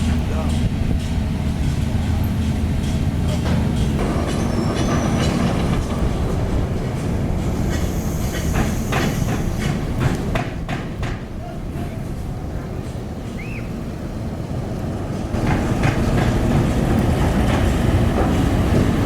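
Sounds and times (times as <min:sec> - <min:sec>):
high metallic squeals: 0:04.0 - 0:06.1.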